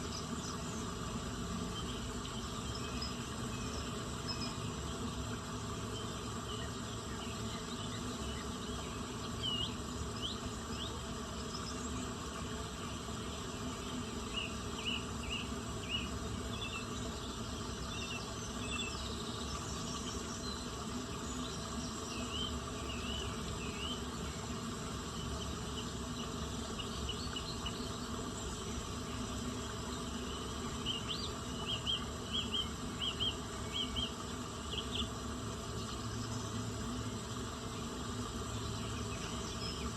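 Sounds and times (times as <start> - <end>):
insect hum: 0.0 - 39.9.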